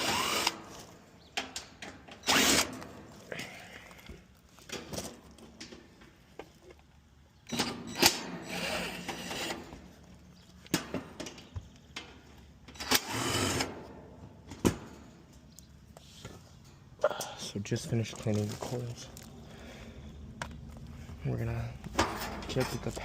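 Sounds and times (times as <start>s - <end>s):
power drill running: 0.0s - 0.7s, 2.2s - 2.7s, 8.4s - 9.6s, 12.8s - 13.7s
hands working on metal panels: 21.8s - 23.0s.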